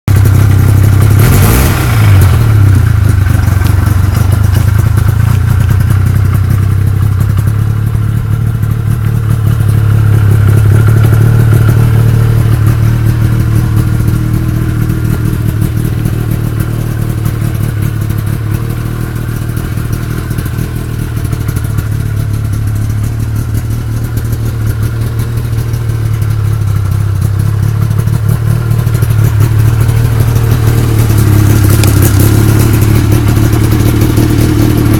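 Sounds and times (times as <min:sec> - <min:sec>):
snowmobile engine running: 0:00.2 - 0:34.9.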